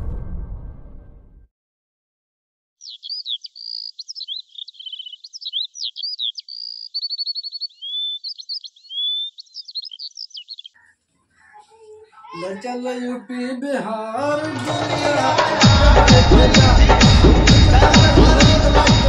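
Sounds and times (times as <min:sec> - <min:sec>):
songbirds chirping and singing: 0:02.8 - 0:13.2, 0:14.2 - 0:19.0.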